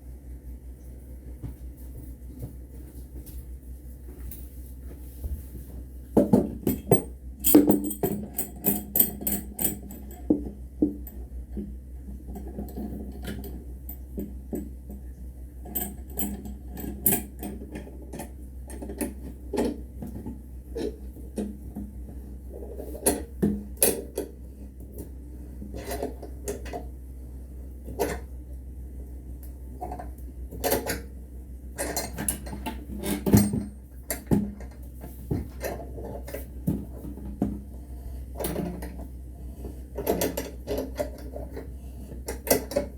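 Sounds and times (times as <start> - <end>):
steady low hum: 0.0 - 42.9
metal parts and tools clinking: 6.7 - 9.8.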